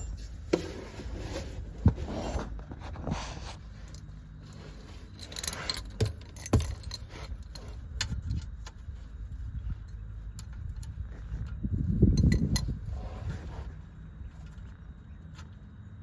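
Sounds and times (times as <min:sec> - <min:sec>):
wrench clinking and scraping: 0:00.0 - 0:00.8, 0:03.9 - 0:08.7, 0:12.1 - 0:12.8.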